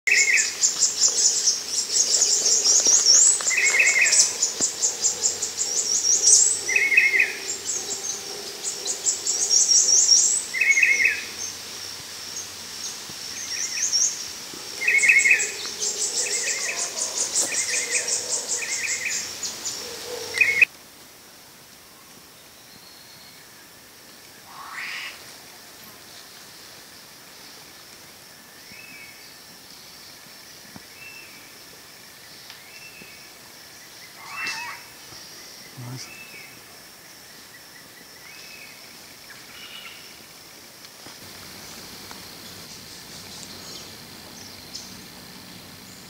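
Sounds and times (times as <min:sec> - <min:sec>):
birds trilling and chattering: 0:00.1 - 0:20.7, 0:33.8 - 0:36.7, 0:41.2 - 0:46.0.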